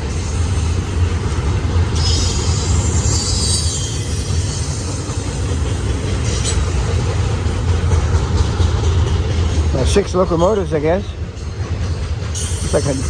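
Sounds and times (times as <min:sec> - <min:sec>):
freight train rumbling past: 0:00.0 - 0:13.0
high wheel screech: 0:02.0 - 0:05.2.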